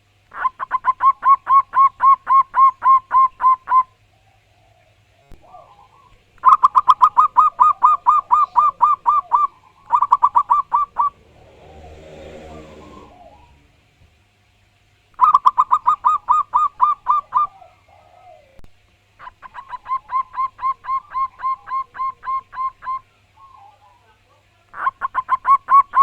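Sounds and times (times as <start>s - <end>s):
dove cooing: 0.3s - 14.0s, 15.2s - 26.0s
faint low sound: 9.8s - 14.2s.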